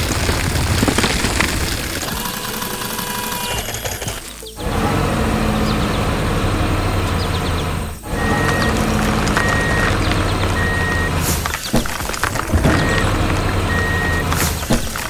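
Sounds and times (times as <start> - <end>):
truck engine running: 0.0 - 15.0
reversing alarm beeping: 2.0 - 11.3, 12.7 - 14.6.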